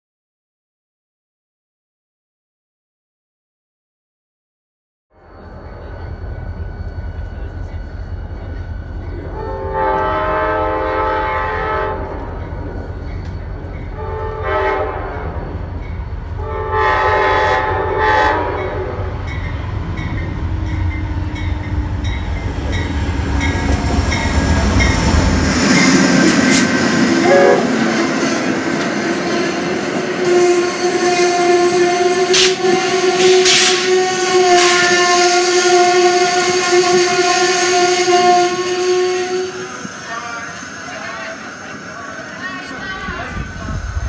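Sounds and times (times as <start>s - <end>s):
train brakes squealing: 5.2s - 17.4s, 18.0s - 44.0s
train wheels rumbling on rails: 5.2s - 44.0s
locomotive air horn blasts: 9.4s - 12.2s, 14.0s - 15.4s, 16.4s - 19.1s, 27.2s - 28.0s, 30.2s - 39.8s
rail joint clicks: 12.0s - 14.0s, 19.3s - 27.0s, 28.0s - 31.3s.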